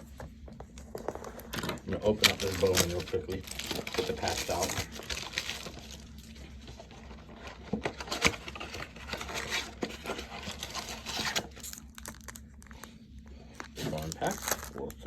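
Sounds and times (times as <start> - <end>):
packaging rustling and crinkling: 0.6 - 15.0.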